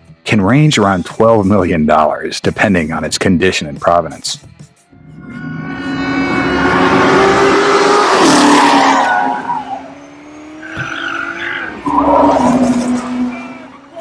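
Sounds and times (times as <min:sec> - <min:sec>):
car engine revving: 0:05.0 - 0:14.0
tyre squeal: 0:05.3 - 0:14.0.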